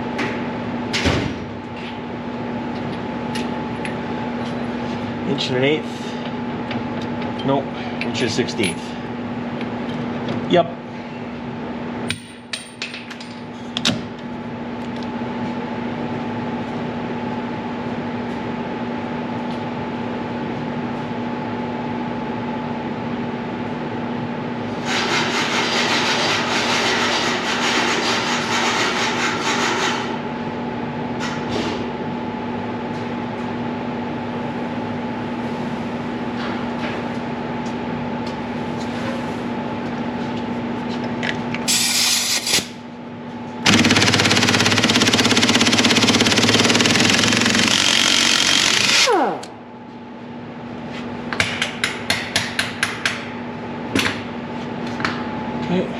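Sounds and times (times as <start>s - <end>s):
machine hum: 42.9s - 50.8s.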